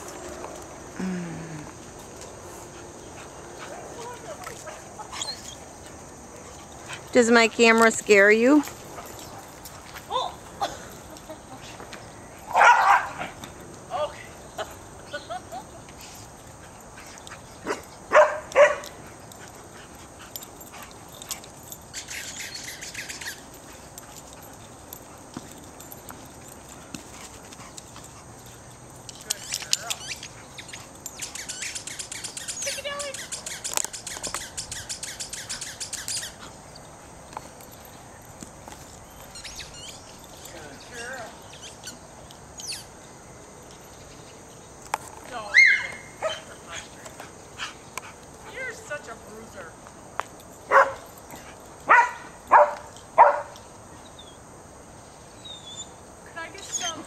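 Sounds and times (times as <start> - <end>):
dog barking: 12.5 - 13.2, 17.7 - 18.9, 46.2 - 46.5, 50.7 - 51.0, 51.9 - 53.5
small birds chirping: 13.9 - 49.2, 53.6 - 57.0.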